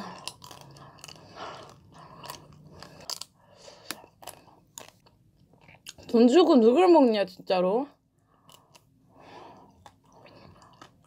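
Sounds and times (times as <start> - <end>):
chocolate shell crunching: 0.0 - 6.2
wet chewing: 0.0 - 6.2, 8.2 - 11.0.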